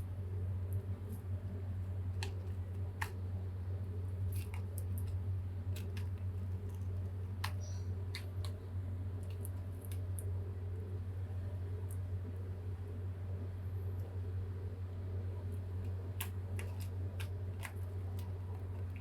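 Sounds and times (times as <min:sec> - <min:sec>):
low hum: 0:00.0 - 0:19.0
light clicks and taps: 0:00.7 - 0:03.2, 0:04.2 - 0:10.4, 0:15.4 - 0:19.0.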